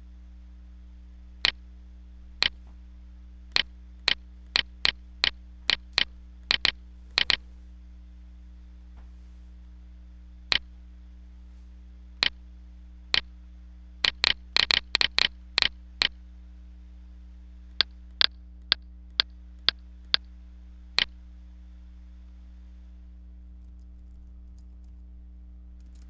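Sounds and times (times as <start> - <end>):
steady electrical hum: 0.0 - 26.0
mouse or keyboard clicks: 3.5 - 7.4, 14.0 - 16.2.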